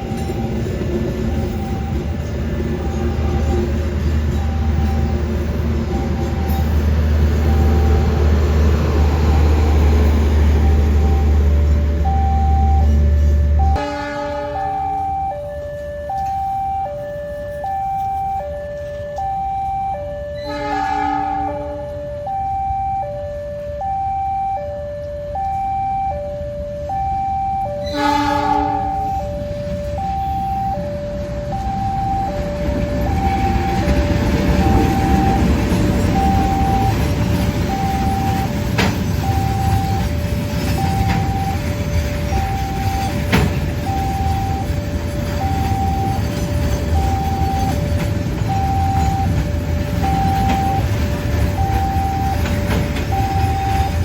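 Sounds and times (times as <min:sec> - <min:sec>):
level crossing alarm tones: 0:00.0 - 0:54.0
passing train rumble: 0:00.0 - 0:54.0
train horn blast: 0:13.2 - 0:15.3, 0:20.4 - 0:22.1, 0:27.8 - 0:29.4.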